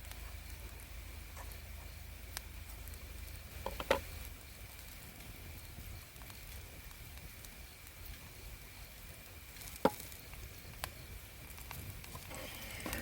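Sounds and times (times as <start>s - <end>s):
sharp pop from frying: 9.7s - 10.1s.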